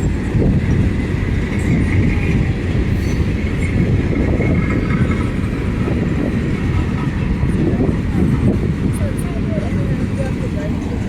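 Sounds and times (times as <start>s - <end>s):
train wheels rumbling on rail: 0.0s - 11.0s
faint high wheel squeal: 2.9s - 3.8s.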